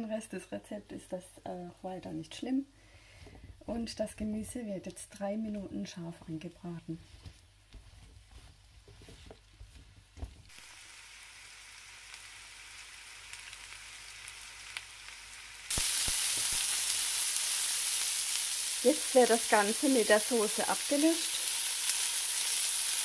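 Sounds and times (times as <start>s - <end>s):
vegetables sizzling in frying pan: 10.5s - 23.0s.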